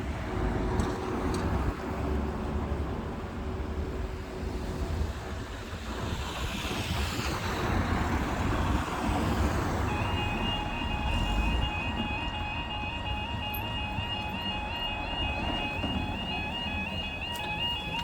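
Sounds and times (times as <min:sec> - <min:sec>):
road traffic passing: 0:00.0 - 0:18.0
level crossing alarm tones: 0:09.8 - 0:18.0.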